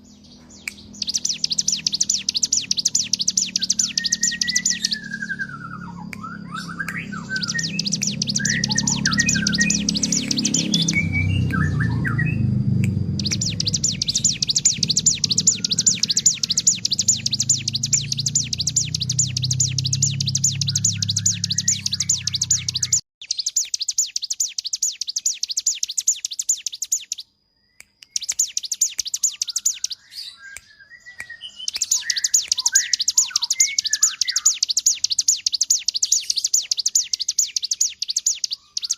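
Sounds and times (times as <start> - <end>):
low hum: 0.0 - 23.0
bird singing rattling trill: 0.0 - 38.9
soft bird chirps: 0.0 - 38.9.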